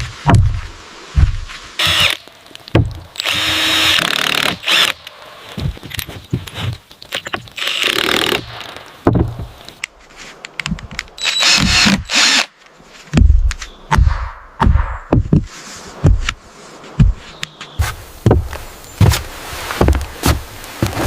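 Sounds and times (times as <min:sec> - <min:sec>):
heavy thumps: 0:00.0 - 0:02.1, 0:02.7 - 0:03.1, 0:09.0 - 0:09.6, 0:13.1 - 0:21.0
power drill running: 0:03.2 - 0:04.9, 0:11.2 - 0:12.5
construction knocks and clatter: 0:05.6 - 0:09.6.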